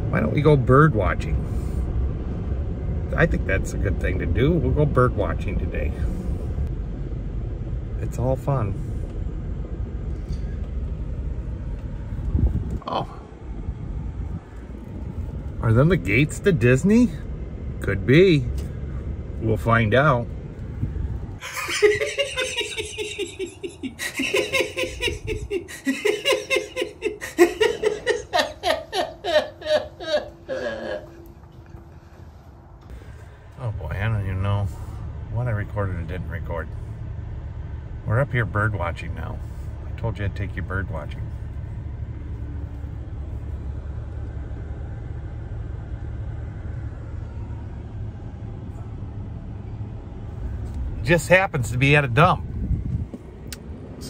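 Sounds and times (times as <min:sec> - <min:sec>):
vehicle engine and road rumble: 0:00.0 - 0:54.0
person laughing high-pitched: 0:21.4 - 0:31.2.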